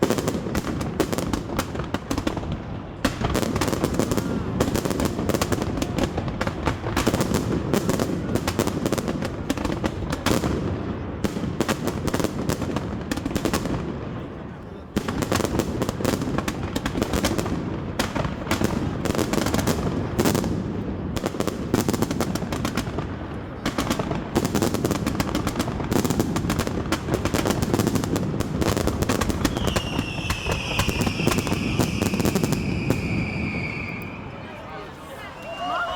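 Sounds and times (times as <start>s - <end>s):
fireworks bangs and crackles: 0.0s - 34.6s
high falling whistle: 29.5s - 34.4s, 35.3s - 35.9s.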